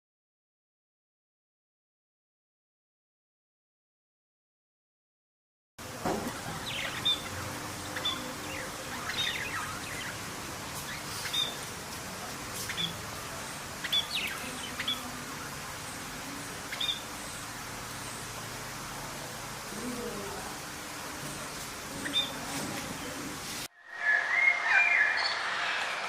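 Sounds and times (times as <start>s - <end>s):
background hiss: 5.8s - 26.0s
bird calling: 6.2s - 18.4s, 21.2s - 26.0s.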